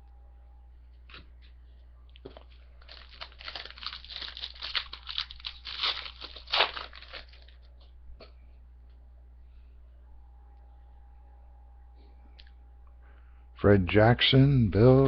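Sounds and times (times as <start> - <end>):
wrapper tearing and crinkling: 2.3 - 7.7.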